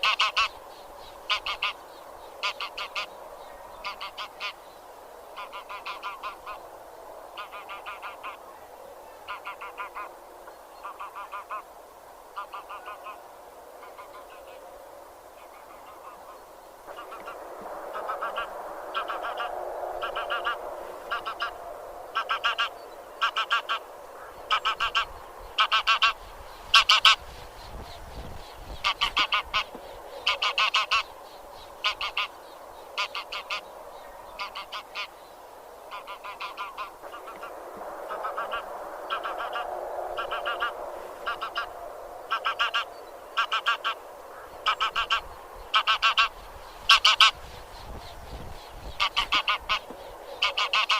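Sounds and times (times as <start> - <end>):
geese honking: 0.0 - 0.6, 1.3 - 1.8, 2.4 - 3.2, 3.8 - 4.6, 5.4 - 6.6, 7.4 - 8.4, 9.2 - 10.2, 10.8 - 11.7, 12.4 - 13.2, 15.5 - 27.2, 28.8 - 31.1, 31.8 - 32.4, 33.0 - 33.7, 34.4 - 35.1, 35.9 - 47.4, 48.9 - 50.9
distant geese chatter: 0.0 - 50.9.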